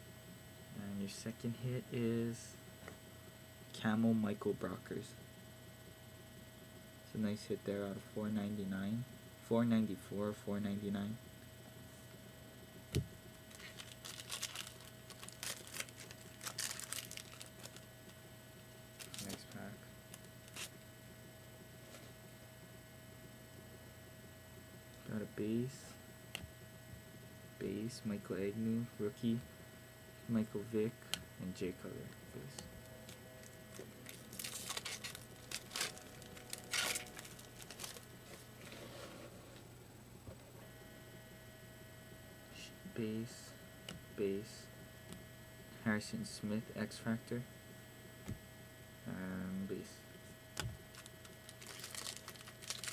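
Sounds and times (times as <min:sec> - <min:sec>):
steady electrical hum: 0:00.0 - 0:52.9
wrapper tearing and crinkling: 0:13.5 - 0:17.8, 0:19.0 - 0:19.5, 0:33.0 - 0:38.2, 0:50.9 - 0:52.9.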